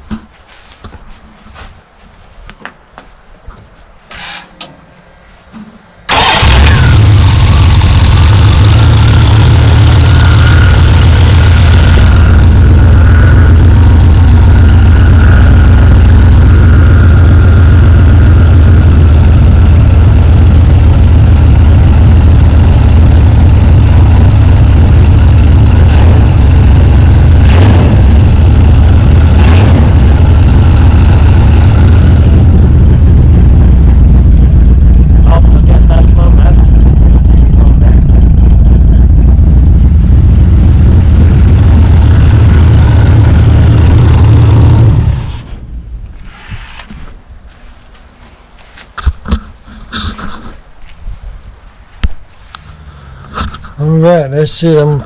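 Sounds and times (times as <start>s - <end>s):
pickup engine starting and idling: 6.0s - 46.0s
hiss: 46.2s - 46.9s.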